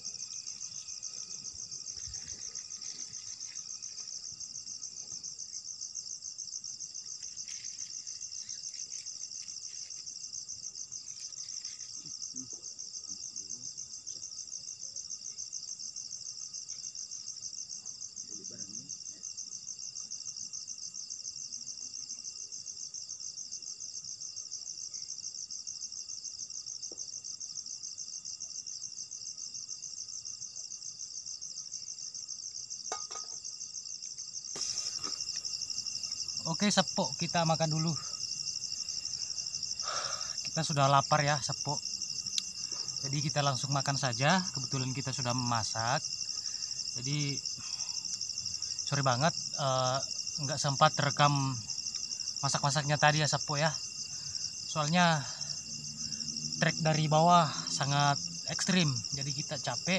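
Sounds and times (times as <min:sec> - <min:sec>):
high pulsing insect trill: 0:00.0 - 0:59.9
thin steady insect tones: 0:00.0 - 0:59.9
faint rustles: 0:00.5 - 0:04.4
small knocks: 0:32.9 - 0:33.4.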